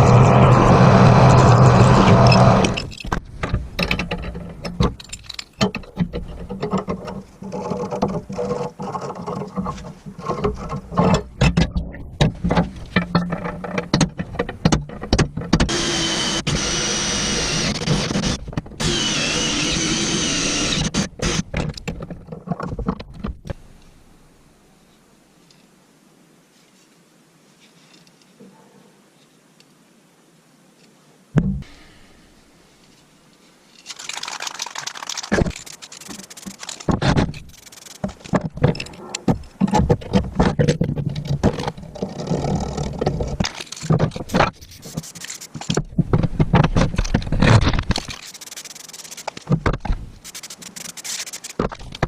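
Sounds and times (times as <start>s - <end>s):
power tool running: 0.0s - 2.8s, 15.7s - 21.4s
sharp knocks and clattering: 2.0s - 15.8s, 20.9s - 23.6s, 35.2s - 48.3s, 49.2s - 52.0s.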